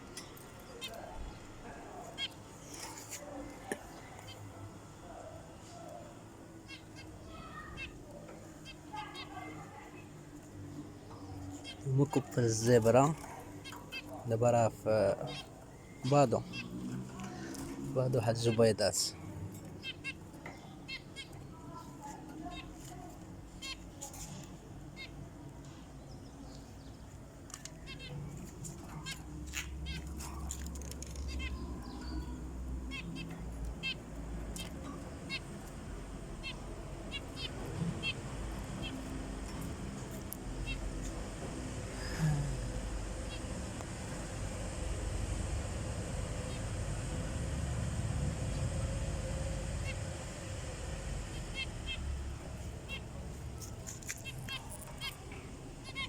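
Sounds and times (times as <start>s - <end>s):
finches calling: 5.2s - 22.7s, 23.6s - 24.3s, 27.7s - 41.2s, 42.1s - 44.3s, 48.3s - 56.0s
low hum: 40.4s - 52.6s
steady low rumble: 41.2s - 53.5s.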